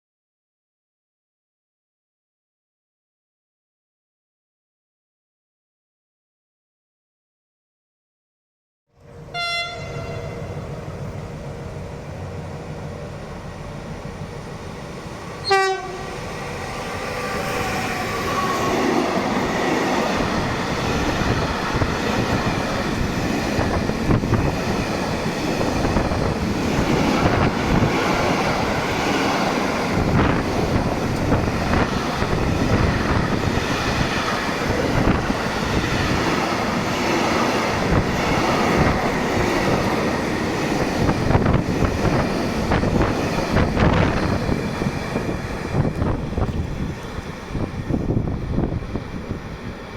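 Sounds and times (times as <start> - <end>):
freight train wagons rumbling: 9.0 - 49.9
train horn toot: 9.3 - 10.5, 15.4 - 16.2.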